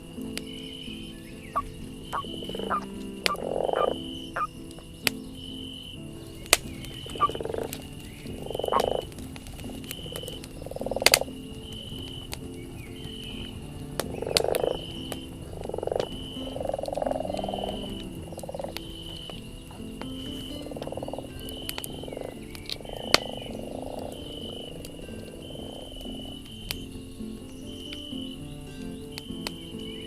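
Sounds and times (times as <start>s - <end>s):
campfire crackling and popping: 0.0s - 30.0s
night forest ambience: 0.0s - 30.0s
high chirp: 0.4s - 9.1s.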